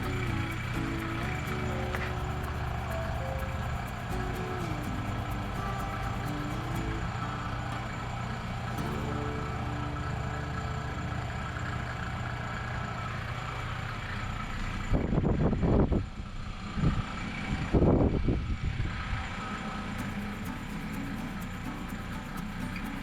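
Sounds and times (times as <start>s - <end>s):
machine humming: 0.0s - 13.8s, 20.0s - 23.0s
rushing surges: 20.0s - 23.0s.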